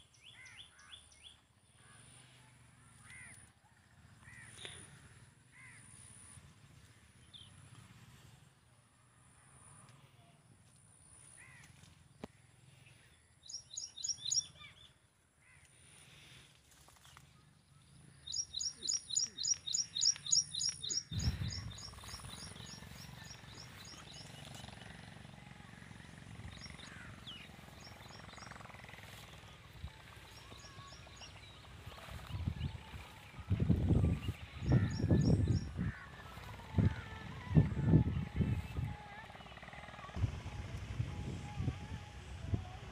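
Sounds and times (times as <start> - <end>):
small birds chirping: 11.5 - 15.0, 16.9 - 36.9
small bird high chirps: 13.5 - 14.6, 18.3 - 24.3.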